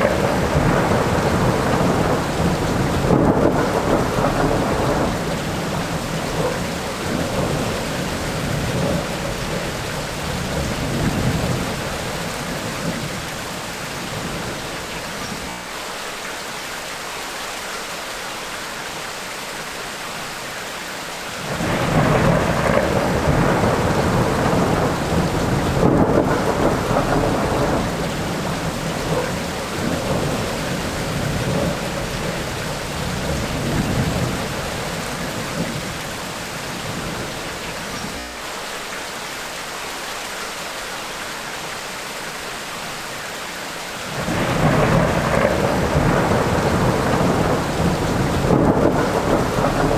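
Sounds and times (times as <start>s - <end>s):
thunder rolling: 0.0s - 15.5s, 21.4s - 38.2s, 44.0s - 49.9s
heavy rain: 0.0s - 49.9s.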